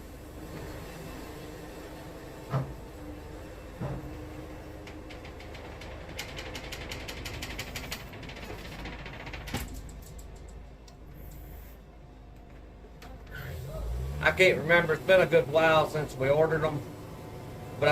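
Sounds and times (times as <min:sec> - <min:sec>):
sawmill engine hum: 0:00.0 - 0:09.2, 0:09.9 - 0:17.9
fast rattling ticking: 0:04.4 - 0:10.8.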